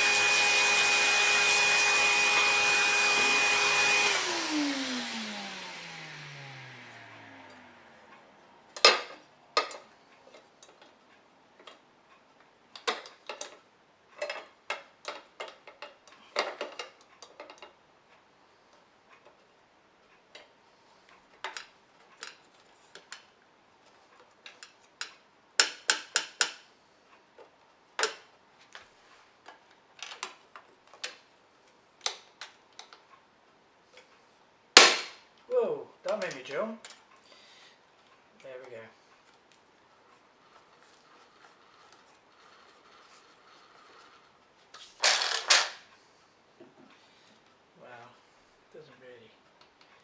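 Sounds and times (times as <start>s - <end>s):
vacuum cleaner motor hum: 0.0s - 8.1s.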